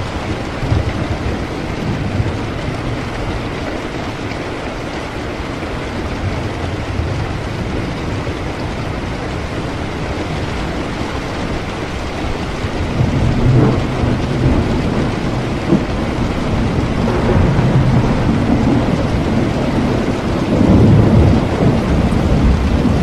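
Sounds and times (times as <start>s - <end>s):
thunder rumble: 0.0s - 4.7s, 5.6s - 23.0s
heavy rain: 0.0s - 23.0s
sharp thunder crack: 13.0s - 23.0s.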